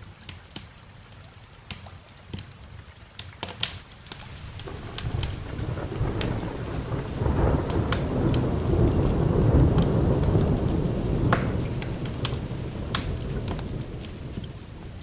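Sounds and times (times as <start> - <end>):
steady rain: 0.0 - 15.0
fireplace pops and crackles: 3.2 - 15.0
rolling thunder: 4.2 - 15.0.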